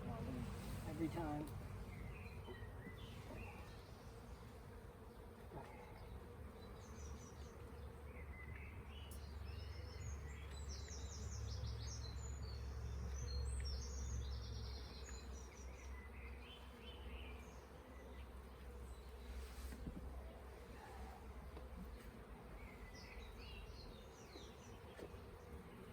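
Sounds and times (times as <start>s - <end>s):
honeybees buzzing: 0.0s - 25.9s
bird singing: 1.9s - 3.9s, 5.8s - 18.4s, 22.6s - 25.5s.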